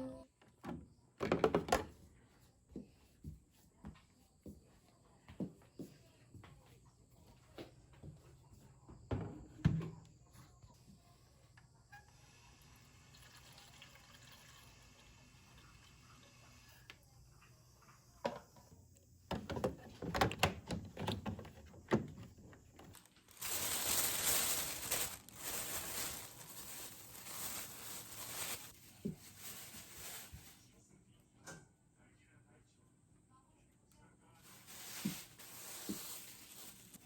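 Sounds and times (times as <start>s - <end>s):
tap water running into sink: 13.0s - 15.4s.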